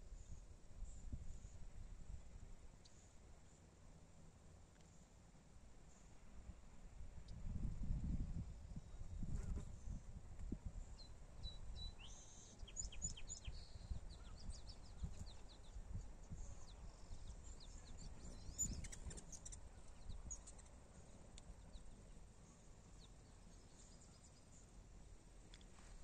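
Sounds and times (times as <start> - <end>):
small birds chirping: 10.8 - 24.8.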